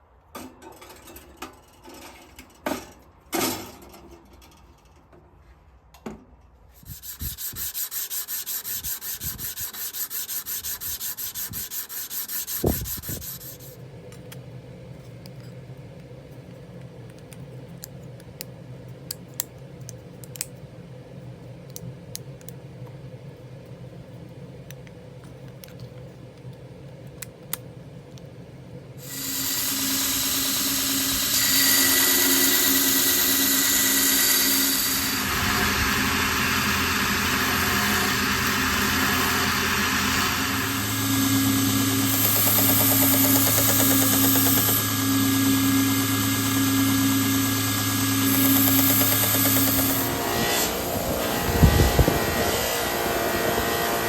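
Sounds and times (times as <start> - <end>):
low hum: 34.6 - 54.0
knocks and clicks: 48.3 - 50.0.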